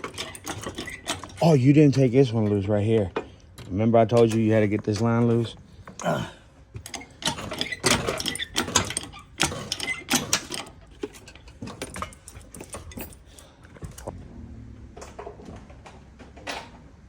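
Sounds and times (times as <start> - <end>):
metal hand tools clattering: 0.0 - 5.6, 6.8 - 13.6.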